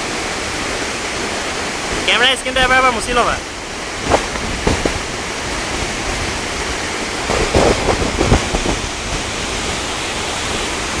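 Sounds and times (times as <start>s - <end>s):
waterfall rushing: 0.0s - 11.0s
bumps on microphone: 4.0s - 5.0s.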